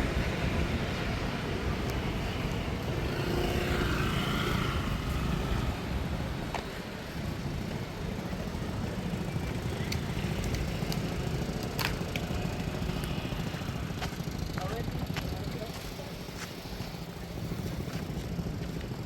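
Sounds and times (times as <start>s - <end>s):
engine passing: 0.0s - 14.9s.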